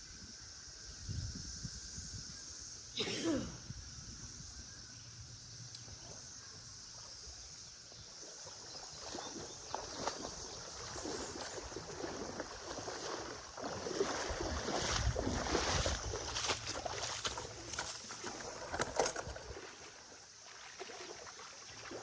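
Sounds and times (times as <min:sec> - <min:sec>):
cicadas droning: 0:00.0 - 0:22.0
river water splashing: 0:06.9 - 0:22.0.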